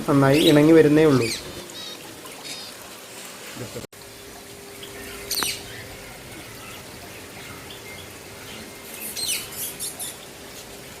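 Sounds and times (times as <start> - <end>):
cage birds chirping: 0.2 - 2.8, 4.8 - 10.3.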